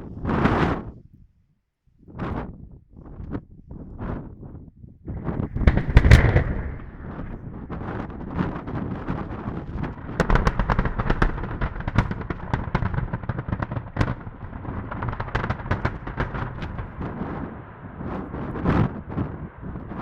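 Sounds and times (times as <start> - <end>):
explosive charges cracking: 5.4 - 20.0
low rumble: 5.4 - 20.0.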